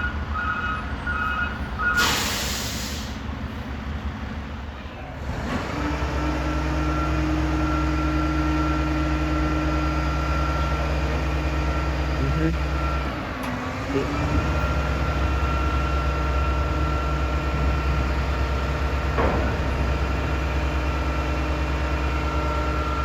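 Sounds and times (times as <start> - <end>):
truck reversing beeper: 0.0 - 3.3, 5.5 - 23.0
truck engine drone with whine: 0.0 - 23.0
air hiss: 2.0 - 3.2.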